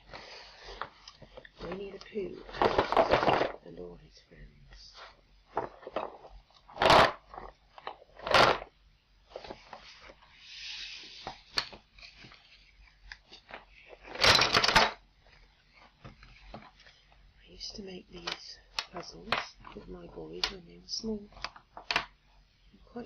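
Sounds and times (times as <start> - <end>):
wooden pieces rattling: 0.7 - 3.7, 5.5 - 8.7, 11.4 - 17.0, 18.2 - 22.2
wooden puzzle pieces clicking: 18.2 - 20.7, 21.3 - 22.2.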